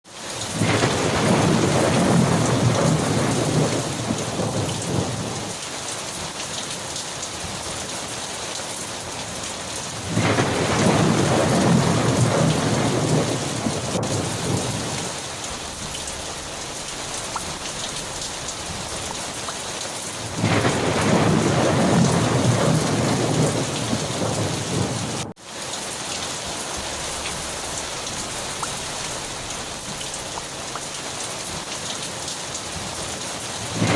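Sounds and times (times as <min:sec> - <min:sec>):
heavy rain: 0:00.1 - 0:33.9
rolling thunder: 0:00.4 - 0:05.6, 0:09.9 - 0:25.4, 0:26.8 - 0:30.9, 0:33.5 - 0:33.9.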